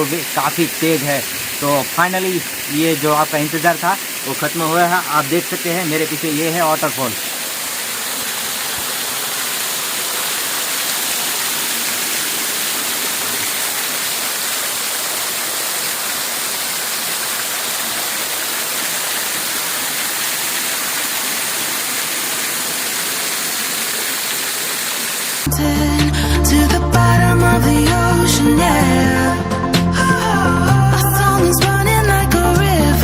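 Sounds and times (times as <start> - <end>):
waterfall roaring: 0.0 - 25.5.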